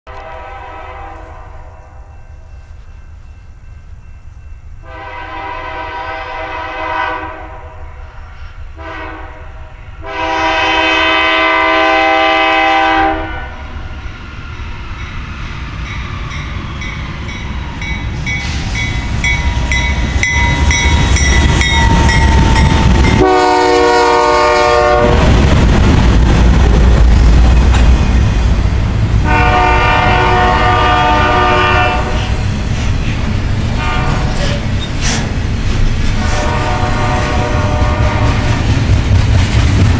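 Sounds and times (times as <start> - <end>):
locomotive air horn blasts: 0.1 - 2.1, 4.8 - 8.0, 8.8 - 13.7, 21.6 - 25.3, 29.2 - 32.4, 33.8 - 34.6, 36.2 - 38.6
train rumbling past on rails: 0.1 - 39.9.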